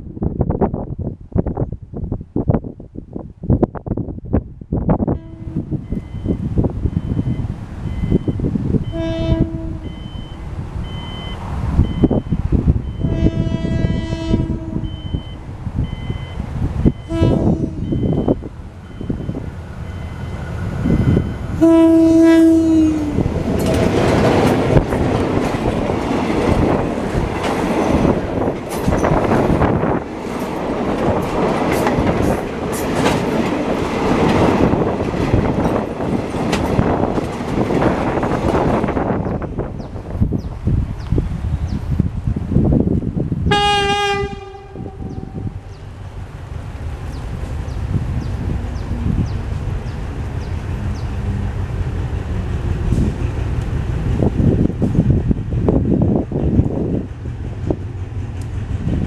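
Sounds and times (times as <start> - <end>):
locomotive horn blasts: 5.1 - 6.3, 8.8 - 11.3, 12.9 - 15.4, 17.0 - 18.4, 20.9 - 23.2, 43.5 - 45.6
train wheels clattering over rail joints: 23.2 - 40.3.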